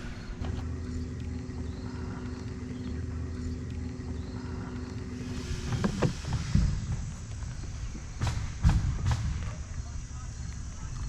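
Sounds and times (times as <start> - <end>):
electric motor humming: 0.0 - 8.6.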